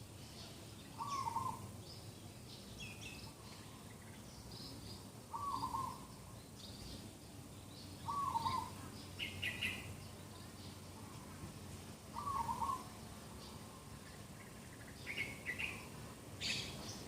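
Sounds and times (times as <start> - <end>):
birds chirping and twittering: 0.0 - 17.0
low wavering bird call: 1.0 - 1.6, 5.3 - 6.0, 8.1 - 8.7, 12.1 - 12.9.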